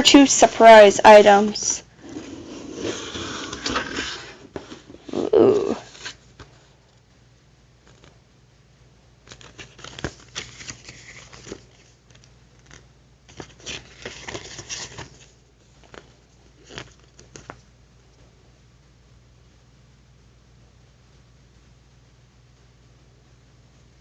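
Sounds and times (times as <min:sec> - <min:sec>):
packaging rustling and crinkling: 0:09.3 - 0:17.6.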